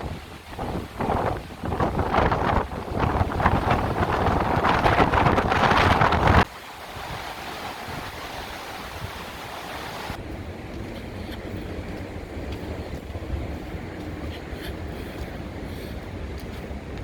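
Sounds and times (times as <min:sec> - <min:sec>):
wind rushing: 0:00.0 - 0:10.2.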